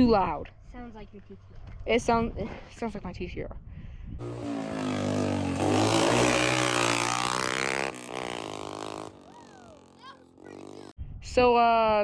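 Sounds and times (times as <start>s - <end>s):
dirt bike engine running: 4.2s - 10.9s.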